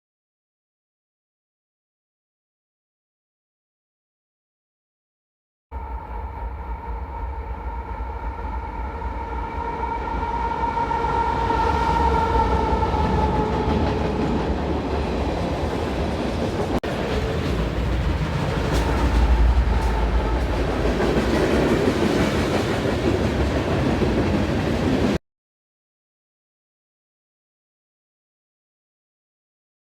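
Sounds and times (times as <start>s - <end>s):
train air horn: 5.8s - 14.4s, 18.7s - 21.8s
locomotive rumble: 5.8s - 25.2s
train cars rolling by: 5.8s - 25.2s
train wheel clicks: 13.8s - 25.1s.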